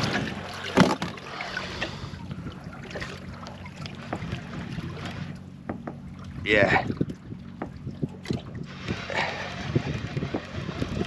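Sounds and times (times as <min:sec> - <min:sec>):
steady low hum: 0:00.0 - 0:11.0
wind noise: 0:06.4 - 0:11.0.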